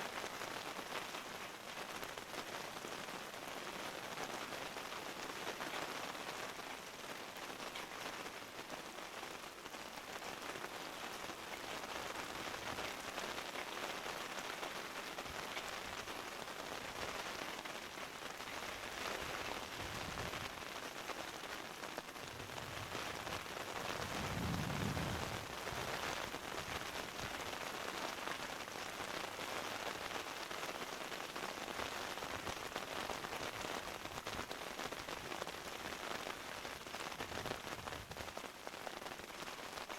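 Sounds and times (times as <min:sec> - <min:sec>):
rain pattering: 0:00.0 - 0:39.9
low rumble: 0:22.4 - 0:25.9.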